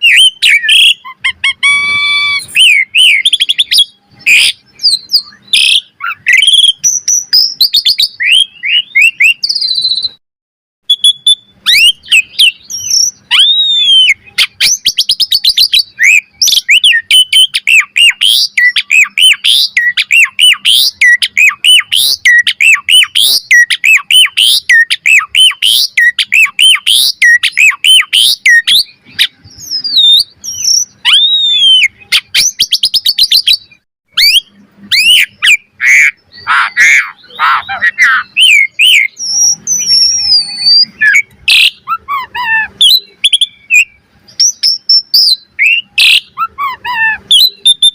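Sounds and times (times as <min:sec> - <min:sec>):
bird singing whistles and chatters: 0:00.0 - 0:10.2, 0:10.9 - 0:47.9.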